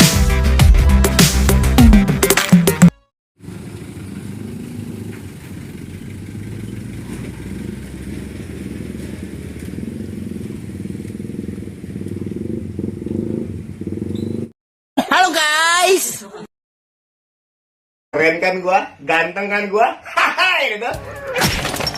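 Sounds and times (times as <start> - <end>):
vehicle engine droning: 3.4 - 14.5.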